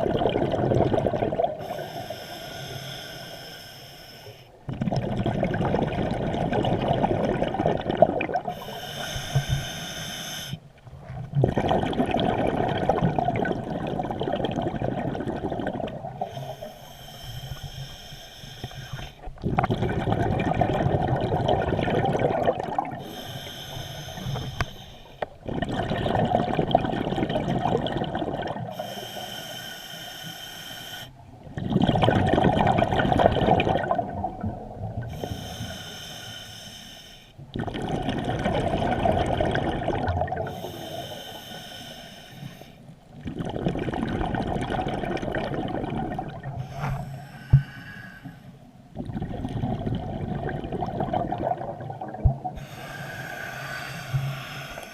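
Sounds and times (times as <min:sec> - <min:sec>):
exhaled bubbles rushing: 0:00.0 - 0:01.7, 0:04.7 - 0:08.5, 0:10.9 - 0:16.3, 0:19.3 - 0:23.1, 0:25.4 - 0:28.8, 0:31.4 - 0:35.2, 0:37.5 - 0:40.6, 0:43.2 - 0:46.7, 0:49.0 - 0:52.6
diver inhaling through regulator: 0:01.6 - 0:04.6, 0:08.4 - 0:10.6, 0:16.2 - 0:19.3, 0:22.9 - 0:25.3, 0:28.7 - 0:31.2, 0:35.1 - 0:37.4, 0:40.5 - 0:42.9, 0:46.5 - 0:48.6, 0:52.5 - 0:54.9.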